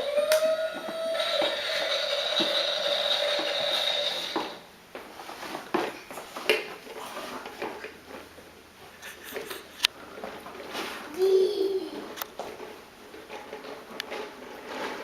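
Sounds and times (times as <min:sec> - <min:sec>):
toy truck electric whine: 0:00.0 - 0:04.7.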